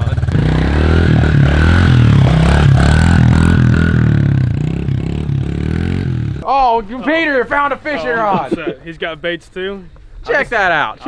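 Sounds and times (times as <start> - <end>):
motorbike engine revving: 0.0 - 6.4.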